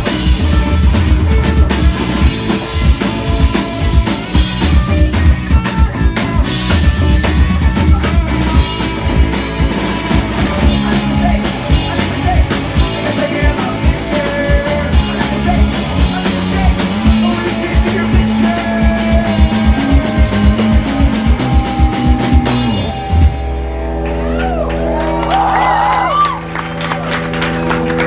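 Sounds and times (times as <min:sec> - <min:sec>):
drum kit beat: 0:00.0 - 0:28.0
electric guitar: 0:00.0 - 0:28.0
person singing: 0:10.1 - 0:23.4.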